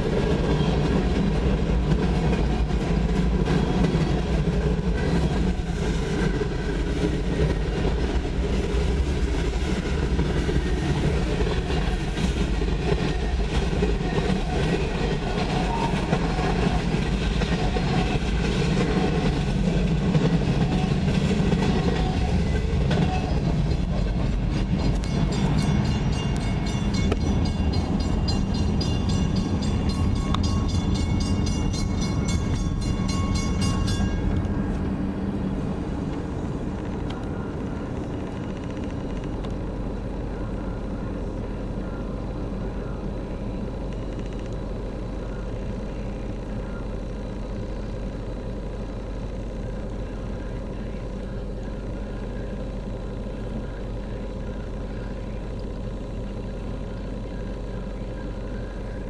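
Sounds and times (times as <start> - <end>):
freight train rumbling past: 0.0 - 59.0
crossing bell ringing: 23.1 - 34.5.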